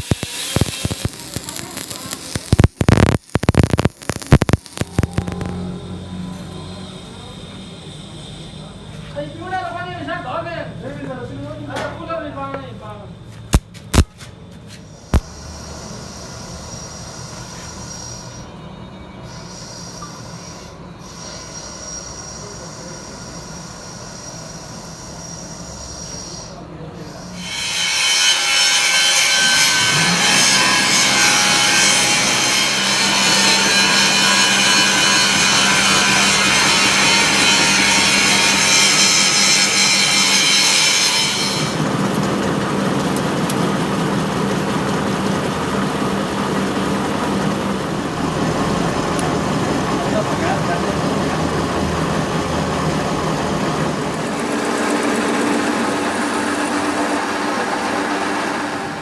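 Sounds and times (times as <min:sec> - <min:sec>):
harsh metal grinding: 0:00.0 - 0:06.8, 0:27.0 - 0:59.0
workshop machine humming: 0:00.0 - 0:59.0.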